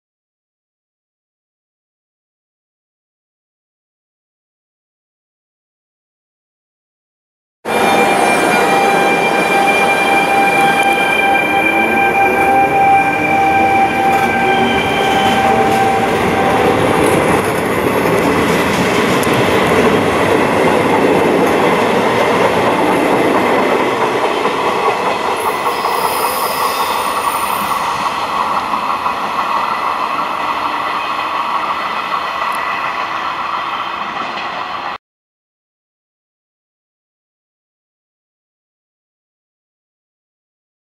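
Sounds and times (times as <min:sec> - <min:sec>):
electric locomotive whine: 0:07.7 - 0:35.0
train rolling on rails: 0:07.7 - 0:35.0.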